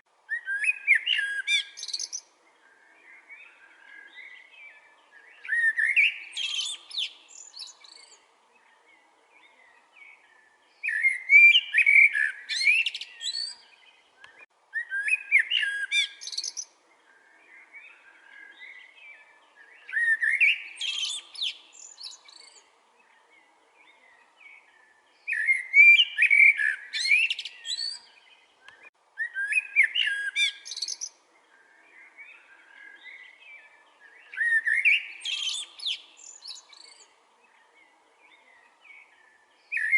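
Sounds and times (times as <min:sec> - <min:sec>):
songbird warbling: 0:00.3 - 0:39.9.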